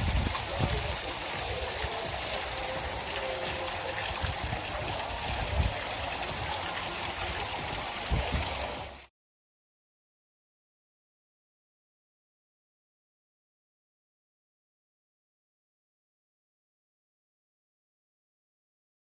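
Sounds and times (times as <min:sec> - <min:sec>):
waterfall rushing: 0:00.0 - 0:09.1.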